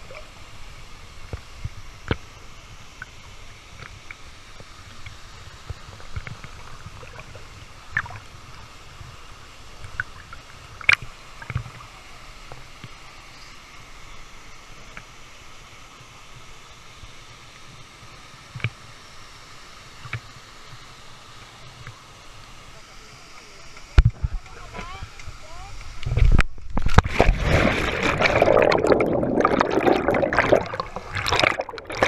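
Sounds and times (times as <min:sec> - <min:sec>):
water gurgling and sloshing: 0:24.0 - 0:32.0
sharp splashes or knocks: 0:26.8 - 0:32.0.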